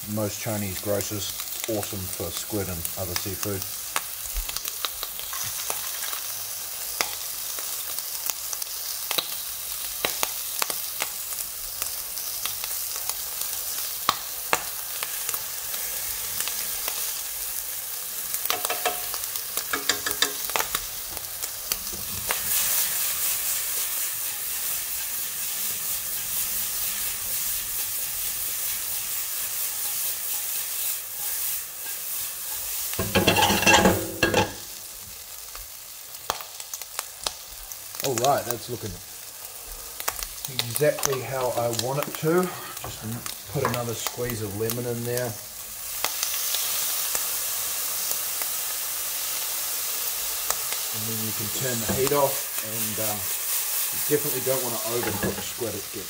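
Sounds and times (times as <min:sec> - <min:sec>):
squid sizzling in a wok: 0:00.0 - 0:56.0
pan knocking on burner: 0:18.5 - 0:20.6, 0:33.0 - 0:34.7, 0:51.8 - 0:52.2, 0:54.9 - 0:55.6
utensil clicking against pan: 0:18.5 - 0:20.8.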